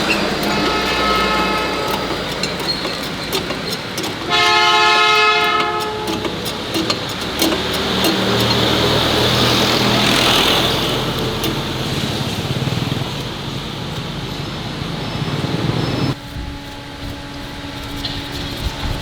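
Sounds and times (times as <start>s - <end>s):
loud horn: 0.0s - 13.2s
clicks and clatter: 0.0s - 14.1s
motor humming: 0.0s - 19.0s.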